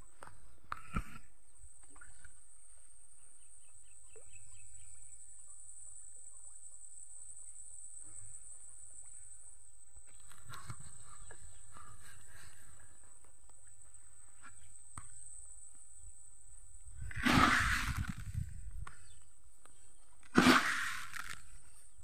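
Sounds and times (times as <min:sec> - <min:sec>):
bird chirping: 0:03.2 - 0:05.6.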